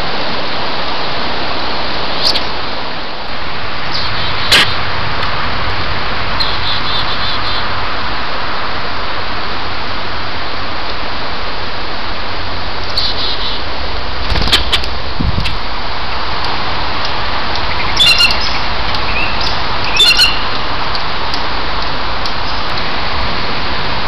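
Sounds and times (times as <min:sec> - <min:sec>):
steady loud hiss: 0:00.0 - 0:24.0
high repeated bird calls: 0:02.2 - 0:02.5, 0:03.9 - 0:04.8, 0:06.4 - 0:07.7, 0:13.0 - 0:13.6, 0:14.2 - 0:15.6, 0:17.6 - 0:20.6.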